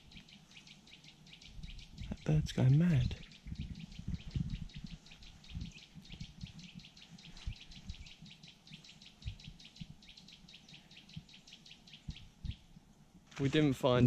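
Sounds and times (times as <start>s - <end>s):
low thumps: 2.0s - 8.1s.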